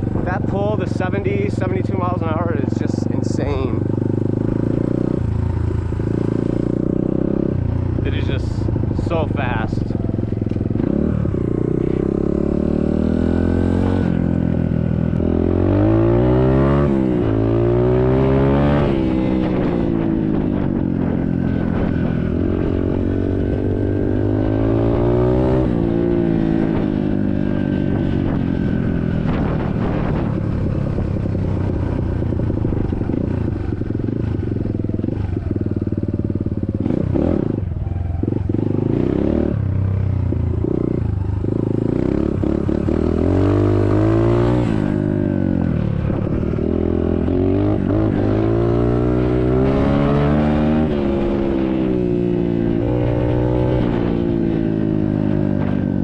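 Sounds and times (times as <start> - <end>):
dirt bike engine revving: 0.2 - 27.3, 32.3 - 39.9, 40.6 - 55.7.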